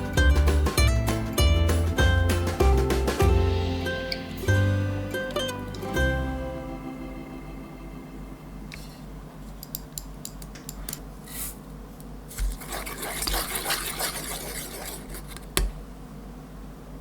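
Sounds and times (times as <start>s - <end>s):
scraping and rubbing: 11.2s - 11.7s, 12.3s - 15.8s.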